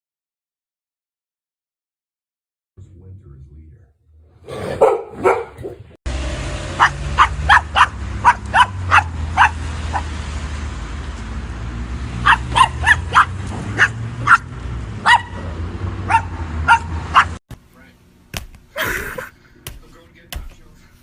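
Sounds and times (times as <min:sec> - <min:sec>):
dog barking: 0:04.5 - 0:05.9, 0:06.8 - 0:10.1, 0:12.2 - 0:15.5, 0:16.1 - 0:17.4.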